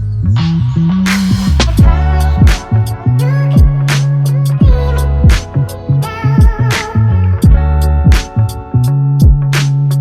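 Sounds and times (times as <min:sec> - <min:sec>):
electronic music with heavy beat: 0:00.0 - 0:10.0
deep kick-drum thumps: 0:01.6 - 0:02.8, 0:03.5 - 0:03.9, 0:04.6 - 0:05.5, 0:06.4 - 0:06.7, 0:07.4 - 0:08.4, 0:09.2 - 0:09.5.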